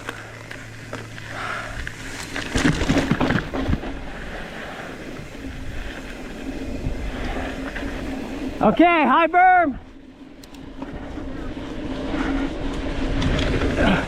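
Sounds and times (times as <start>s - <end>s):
bike tyre noise on dirt: 0.0s - 14.0s
wind rushing over microphone: 2.7s - 8.7s.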